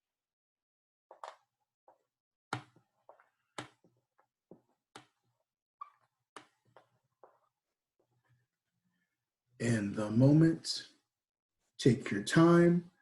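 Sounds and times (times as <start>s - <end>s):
marker writing on whiteboard: 1.1s - 8.4s.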